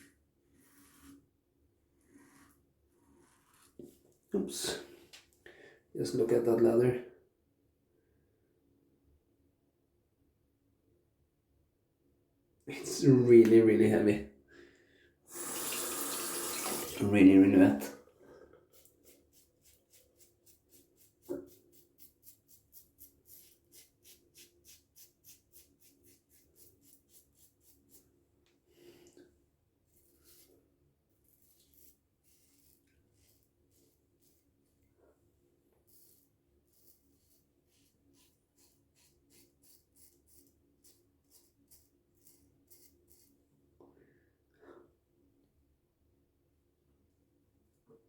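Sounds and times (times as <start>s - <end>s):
razor scraping stubble: 18.7s - 28.0s, 31.2s - 34.4s, 35.8s - 43.4s.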